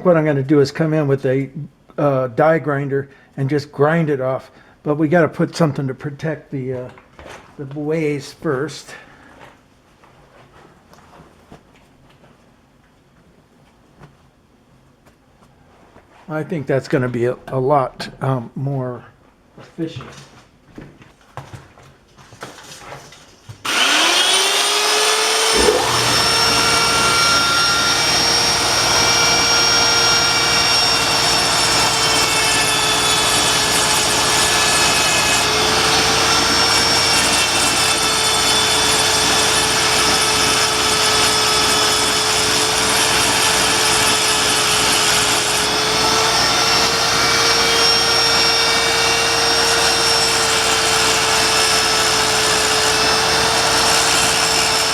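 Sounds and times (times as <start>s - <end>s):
die grinder high whine: 23.6s - 54.9s.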